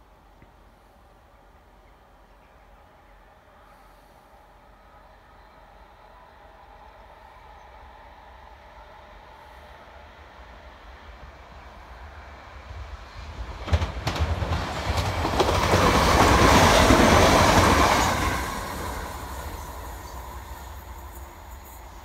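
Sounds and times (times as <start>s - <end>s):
train wheels rumbling on rails: 6.6s - 22.0s.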